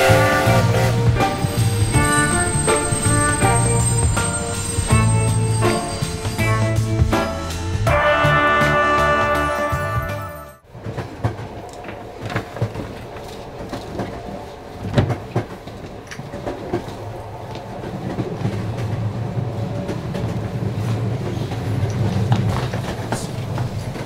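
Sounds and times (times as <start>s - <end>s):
train rumbling on rails: 0.0s - 24.0s.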